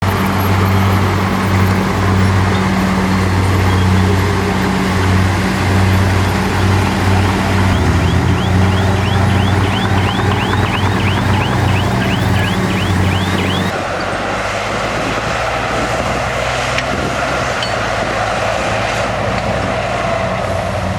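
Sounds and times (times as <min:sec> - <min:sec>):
rapid high squeaks: 0:00.0 - 0:13.7
heavy machinery engine hum: 0:00.0 - 0:20.9.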